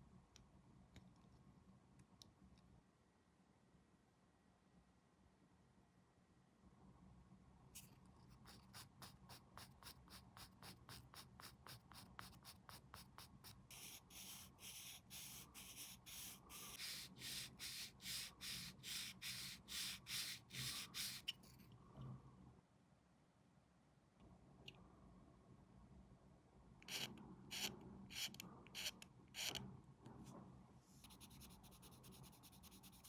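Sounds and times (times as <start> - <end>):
sanding strokes on plastic: 8.4 - 21.3.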